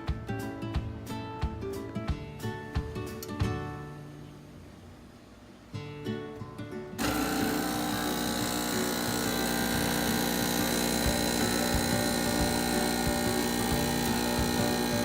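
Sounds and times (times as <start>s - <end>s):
espresso machine pump buzzing: 7.0s - 15.0s.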